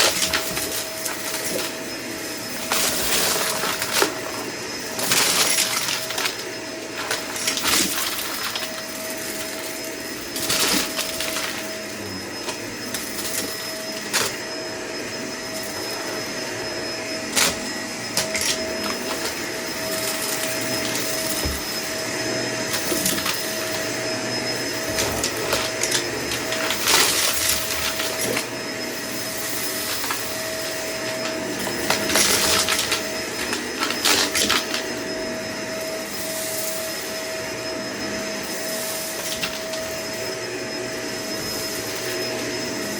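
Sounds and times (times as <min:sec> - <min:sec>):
vacuum cleaner whining: 0:00.0 - 0:42.9.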